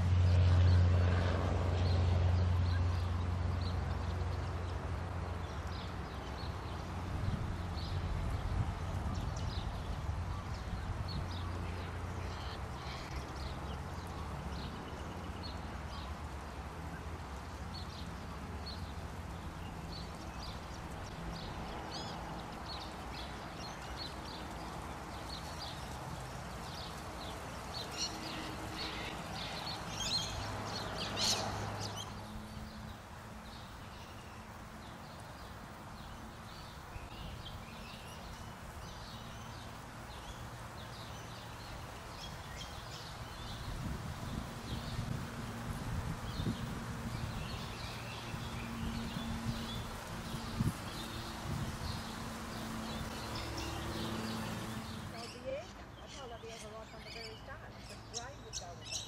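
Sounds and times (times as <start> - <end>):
birds chirping and calling: 25.3 - 34.4, 46.2 - 59.0.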